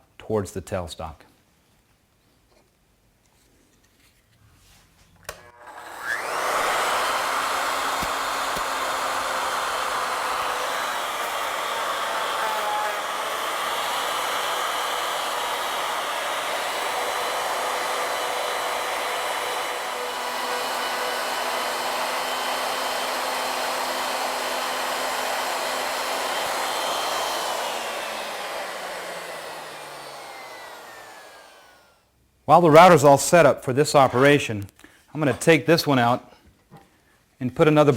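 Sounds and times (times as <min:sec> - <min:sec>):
router milling wood: 0:05.3 - 0:32.0.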